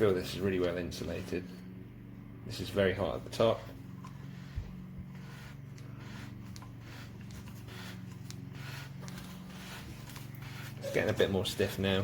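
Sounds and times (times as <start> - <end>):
low steady hum: 0.0 - 12.0
scratchy handling sounds: 3.8 - 11.9.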